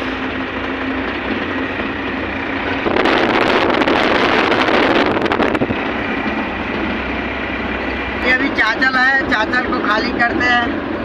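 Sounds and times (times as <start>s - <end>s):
truck engine and road noise: 0.0s - 11.0s
wind rushing: 1.4s - 7.8s.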